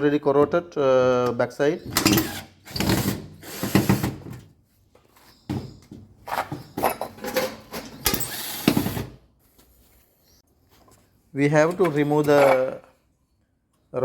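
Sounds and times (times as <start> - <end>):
tools knocking and scraping: 1.2 - 9.1, 11.6 - 13.0.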